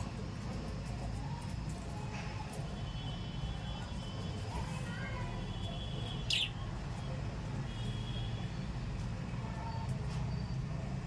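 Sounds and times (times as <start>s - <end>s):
parrot chirping: 6.2s - 6.6s.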